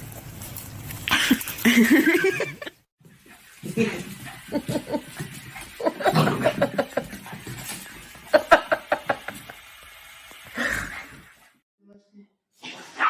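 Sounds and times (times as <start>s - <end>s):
person laughing: 1.1s - 2.8s, 3.7s - 5.1s, 5.8s - 7.2s, 8.3s - 9.6s.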